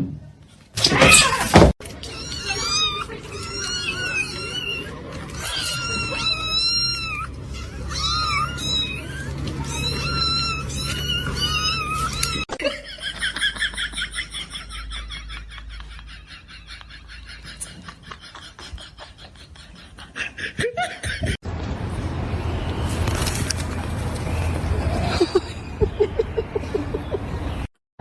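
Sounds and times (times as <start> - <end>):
kittens mewing: 0.8 - 12.4.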